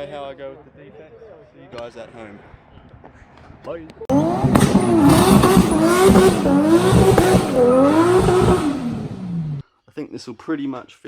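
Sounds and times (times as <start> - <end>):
car engine revving high: 4.1 - 9.6.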